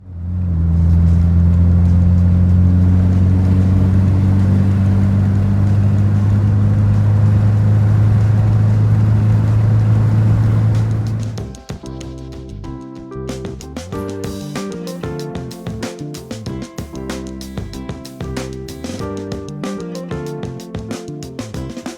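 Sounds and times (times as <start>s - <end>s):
car engine idling steadily: 0.0s - 11.7s.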